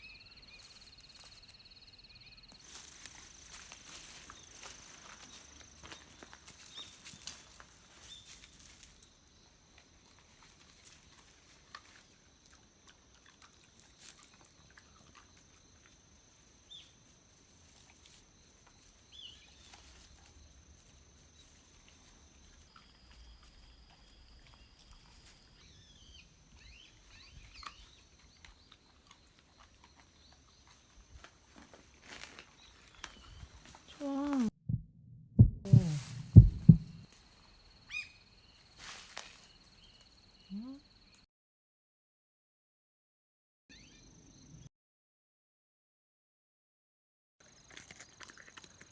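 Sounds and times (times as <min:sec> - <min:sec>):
small clicks and rustles: 0:02.6 - 0:09.1, 0:47.4 - 0:48.9.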